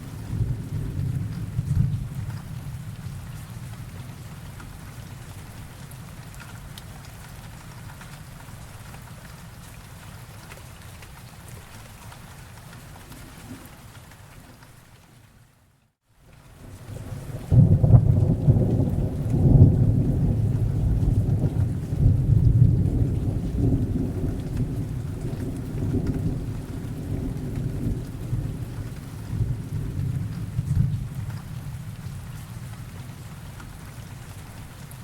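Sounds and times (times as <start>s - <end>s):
thunder rumbling: 0.0s - 4.3s, 16.9s - 32.9s
steady rain: 0.0s - 35.0s.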